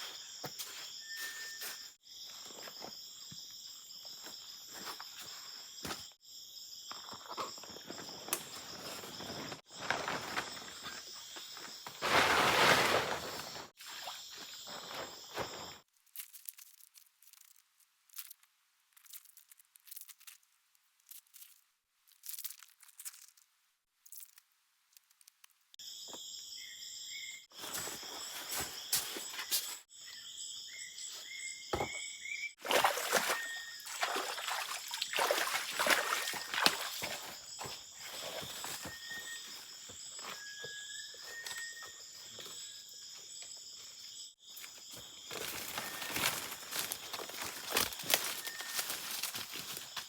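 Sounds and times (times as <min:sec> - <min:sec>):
high insect chorus: 0:00.0 - 0:15.8, 0:25.8 - 0:50.0
crunching and rustling: 0:07.3 - 0:25.5, 0:32.7 - 0:41.7, 0:44.6 - 0:50.0.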